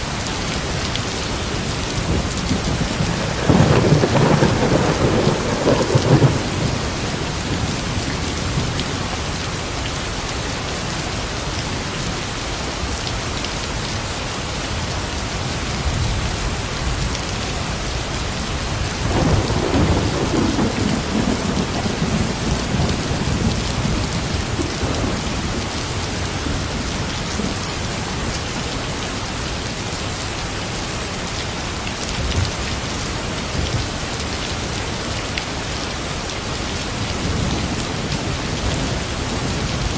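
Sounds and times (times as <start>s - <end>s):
rain pouring: 0.0s - 39.9s
thunder rumbling: 1.4s - 9.2s, 18.8s - 27.6s.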